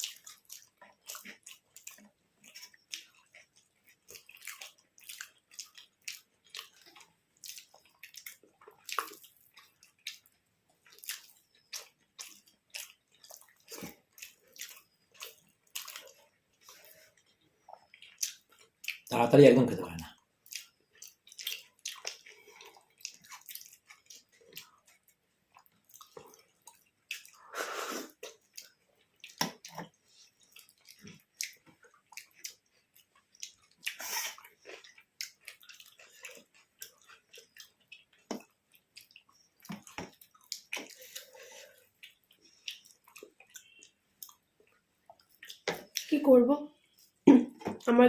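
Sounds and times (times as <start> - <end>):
person chewing food: 0.0 - 19.1, 19.8 - 46.1, 46.8 - 47.9
wet squelches: 20.0 - 47.9
wet mouth clicks and lip smacks: 20.4 - 22.3, 28.1 - 41.4, 42.0 - 46.1.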